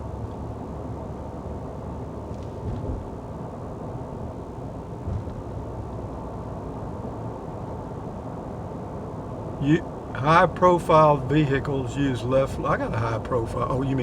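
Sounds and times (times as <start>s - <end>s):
car road and engine noise: 0.0s - 14.0s
faint bumps: 2.4s - 3.2s, 5.0s - 5.5s.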